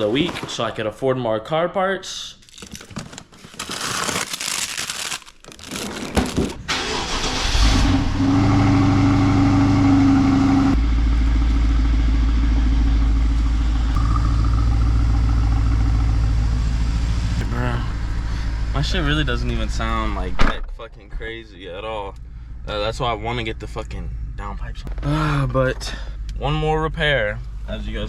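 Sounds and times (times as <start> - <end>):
car engine running: 6.7 - 20.4, 21.2 - 28.0.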